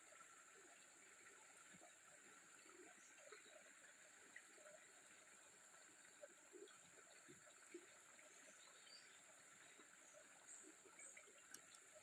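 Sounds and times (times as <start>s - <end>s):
soft ticks: 11.2s - 12.0s.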